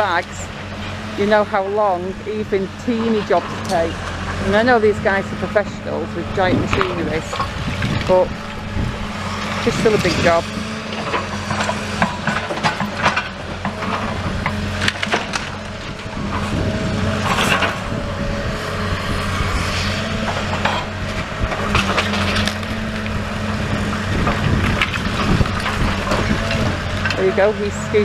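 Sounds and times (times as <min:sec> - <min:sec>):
excavator diesel engine running: 0:00.0 - 0:28.0
rubble knocking and clattering: 0:11.0 - 0:15.7.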